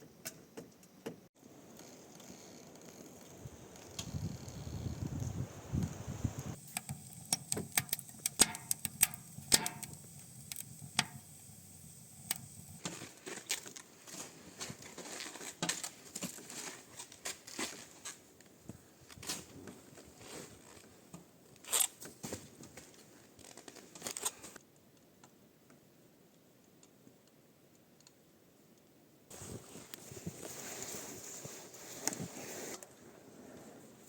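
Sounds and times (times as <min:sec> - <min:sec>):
gear rustling and crinkling: 0:12.7 - 0:24.6, 0:29.3 - 0:32.8.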